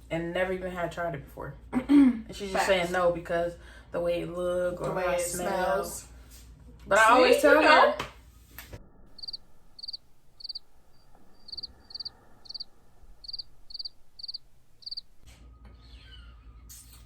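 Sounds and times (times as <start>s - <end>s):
cricket chirping: 9.2s - 15.1s.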